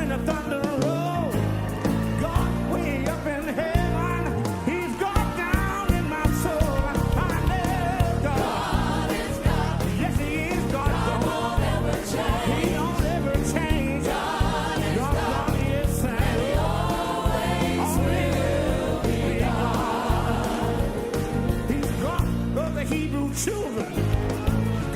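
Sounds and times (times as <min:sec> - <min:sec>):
choir singing gospel music: 0:00.0 - 0:24.9
strong bass notes: 0:05.2 - 0:23.3.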